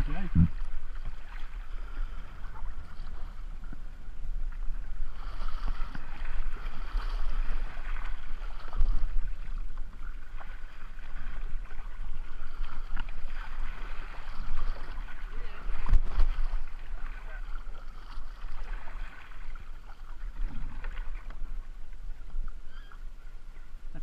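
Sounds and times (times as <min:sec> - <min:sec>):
low rumble on microphone: 0:00.0 - 0:24.0
river water splashing and rushing: 0:04.5 - 0:22.4.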